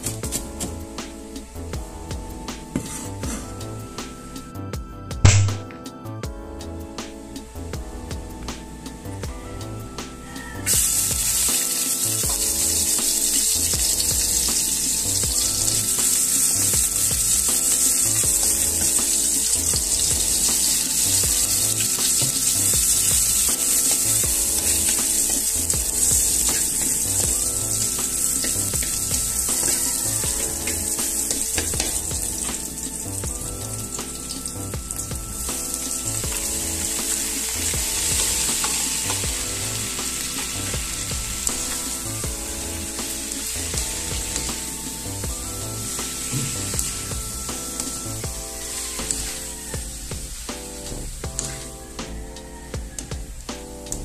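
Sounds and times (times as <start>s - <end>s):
food sizzling in oil: 9.8s - 52.6s
spatula stirring in wok: 10.8s - 44.7s.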